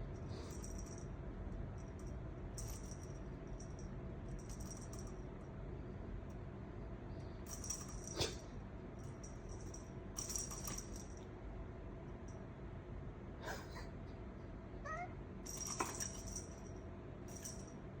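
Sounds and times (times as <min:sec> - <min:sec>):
small bell jingling: 0:01.8 - 0:05.2, 0:07.5 - 0:08.2, 0:09.0 - 0:11.2, 0:15.5 - 0:17.8
cat chirping meow: 0:14.8 - 0:15.2.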